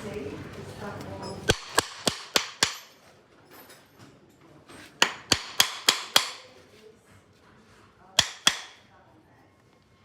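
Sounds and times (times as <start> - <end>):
hammer tapping horseshoe nails: 1.5 - 3.0, 5.0 - 6.5, 8.2 - 8.8.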